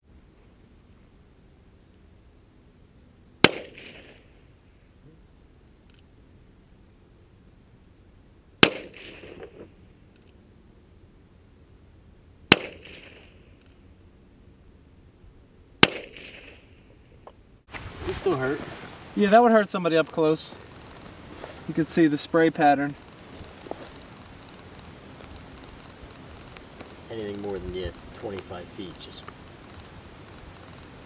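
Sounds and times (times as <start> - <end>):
revolver gunshots: 3.4 - 4.3, 8.6 - 9.7, 12.5 - 13.5, 15.8 - 16.8.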